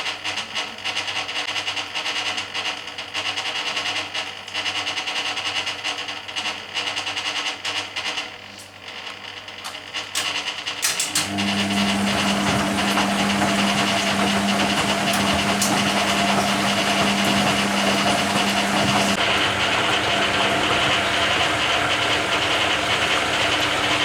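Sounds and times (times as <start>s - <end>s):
washing machine pump humming: 9.4s - 24.0s
rushing water: 11.5s - 20.7s.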